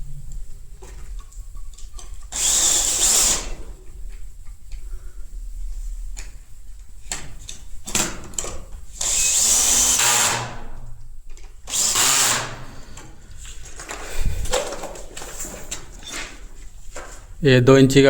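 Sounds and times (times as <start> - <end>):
handheld power drill running: 2.3 - 3.6, 9.0 - 10.8, 11.6 - 13.0
knocks and handling sounds: 13.4 - 17.4.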